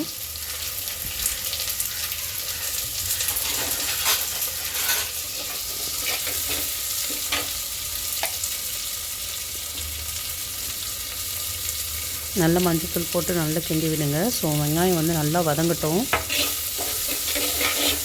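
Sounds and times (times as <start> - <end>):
onion sizzling in oil: 0.0 - 18.0
spatula scraping a pan: 2.7 - 7.6, 16.1 - 18.0.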